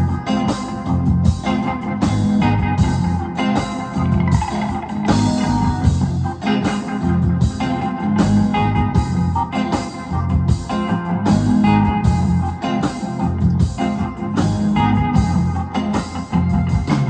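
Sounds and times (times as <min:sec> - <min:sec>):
electric guitar: 0:00.0 - 0:17.0
live rock band playing: 0:00.0 - 0:17.0
steady drum beat: 0:00.0 - 0:17.0.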